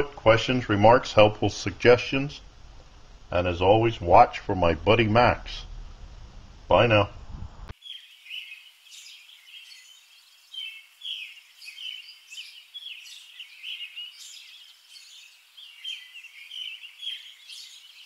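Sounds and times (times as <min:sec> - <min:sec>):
small birds chirping: 0:07.7 - 0:18.0.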